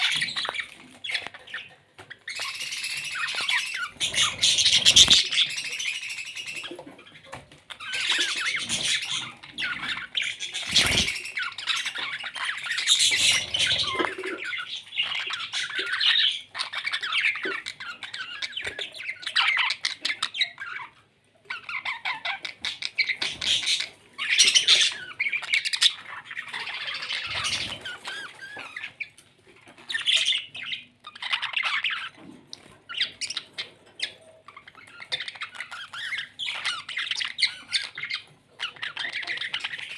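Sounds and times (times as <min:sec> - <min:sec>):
parrots squawking: 0:00.0 - 0:39.9.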